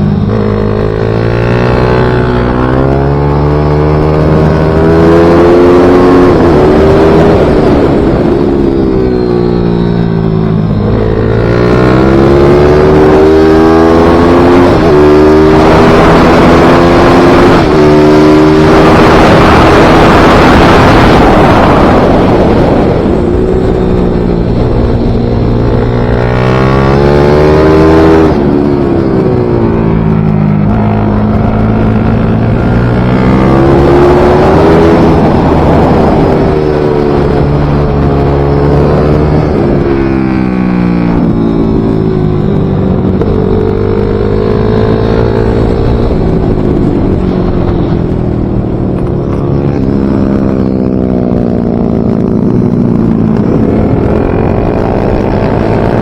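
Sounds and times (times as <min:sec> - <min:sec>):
pit bike engine revving: 0:10.0 - 0:56.0.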